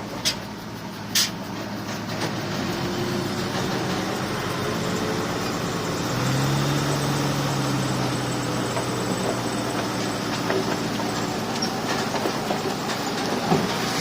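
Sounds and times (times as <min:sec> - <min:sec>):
diesel engine of heavy machinery: 0:00.0 - 0:14.0.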